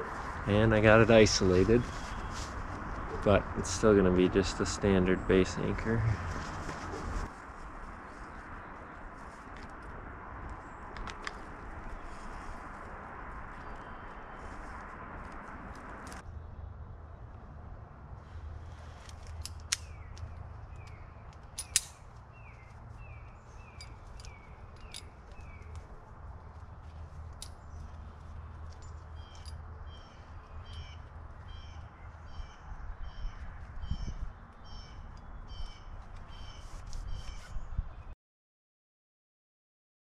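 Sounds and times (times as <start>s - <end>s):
small birds chirping: 1.1s - 3.7s, 19.8s - 38.1s.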